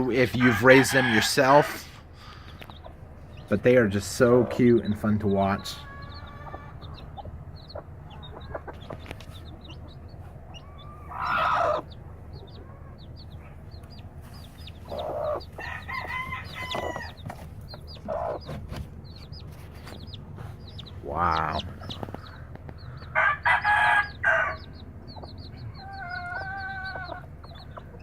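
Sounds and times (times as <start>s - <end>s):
chicks peeping: 0.0s - 28.0s
hen calling: 4.2s - 13.6s, 20.5s - 23.2s.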